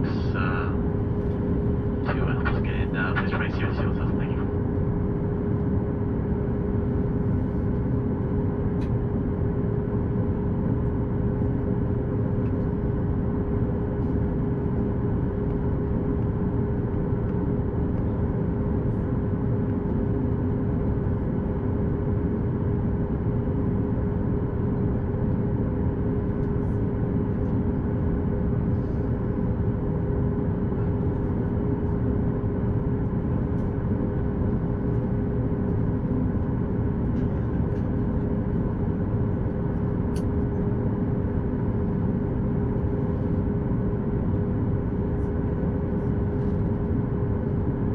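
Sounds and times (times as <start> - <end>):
cabin air: 0.0 - 5.8, 28.6 - 32.3
constant hum: 0.0 - 47.9
idling jet engines rumble: 0.0 - 47.9.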